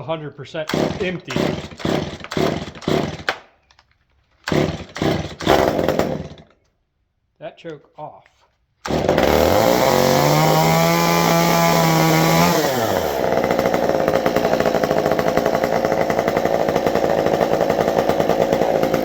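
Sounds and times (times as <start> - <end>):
chainsaw revving and idling: 0.6 - 3.4, 4.4 - 6.5, 8.8 - 19.0.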